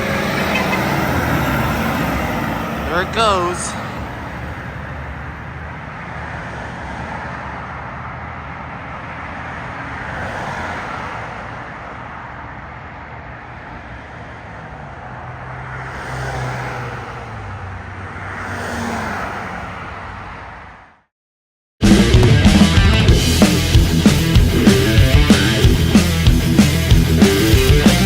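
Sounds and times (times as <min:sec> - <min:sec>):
garbage truck engine droning: 0:00.0 - 0:05.5, 0:21.8 - 0:28.0.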